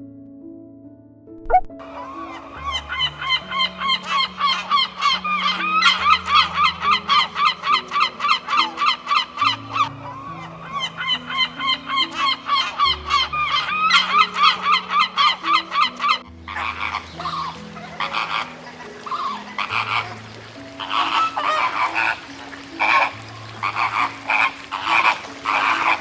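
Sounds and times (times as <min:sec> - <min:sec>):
waterfowl honking: 0:01.8 - 0:26.0
rough animal sound: 0:16.1 - 0:26.0.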